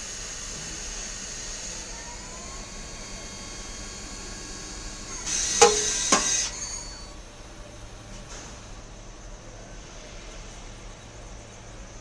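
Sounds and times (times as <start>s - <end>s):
lathe humming: 0.0s - 7.2s
hiss: 5.2s - 6.7s.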